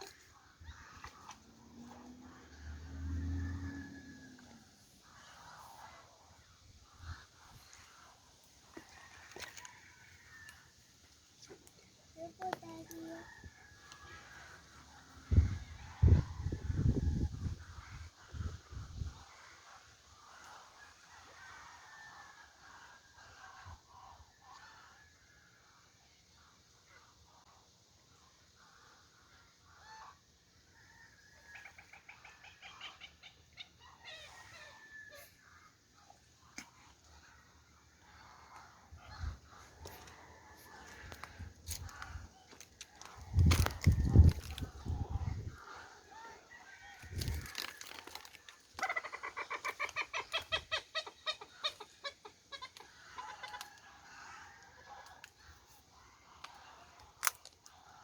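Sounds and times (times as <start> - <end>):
chicken clucking: 48.7 - 53.8.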